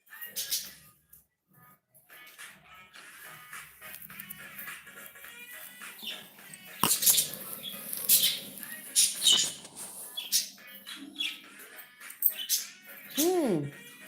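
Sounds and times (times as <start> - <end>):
cockatiel chirping and squawking: 6.0 - 11.4.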